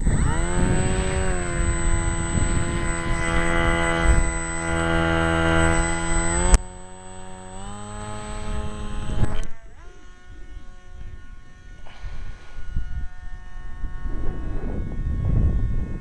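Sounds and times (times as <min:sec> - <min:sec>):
electric model plane motor whine: 0:00.0 - 0:16.0
sharp click: 0:05.5 - 0:06.7.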